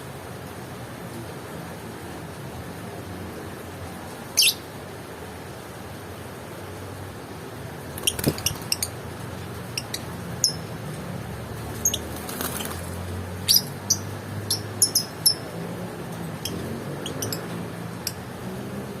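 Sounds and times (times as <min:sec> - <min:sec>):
bird high chirps: 0:04.4 - 0:04.6, 0:13.4 - 0:15.5.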